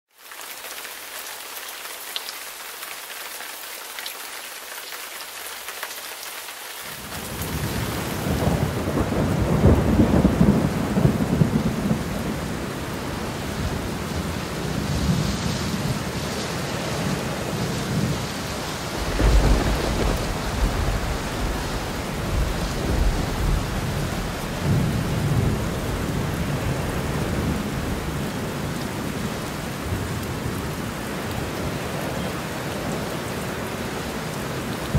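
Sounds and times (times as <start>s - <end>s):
steady rain hiss: 0.1s - 34.9s
rolling thunder rumbling: 7.1s - 16.2s, 17.0s - 28.2s.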